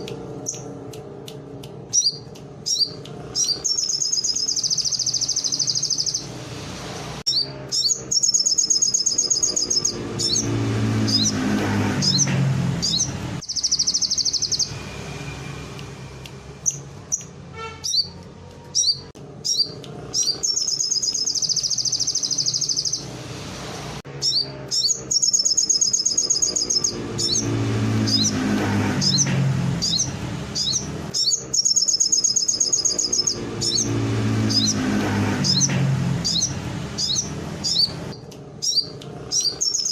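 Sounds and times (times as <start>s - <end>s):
songbird trilling: 1.9s - 6.3s, 7.3s - 10.5s, 12.0s - 14.8s, 16.6s - 23.1s, 24.2s - 28.4s, 29.8s - 34.8s, 35.5s - 39.9s.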